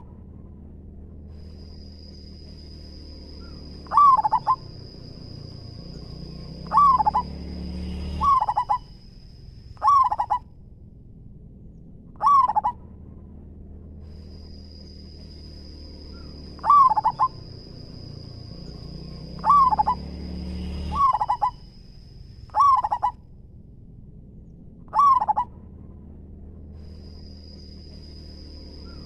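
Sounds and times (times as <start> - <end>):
dove stuttering coos: 3.4 - 9.0, 9.8 - 10.4, 12.2 - 12.9, 16.1 - 18.0, 18.6 - 21.6, 22.5 - 23.2, 24.9 - 25.6.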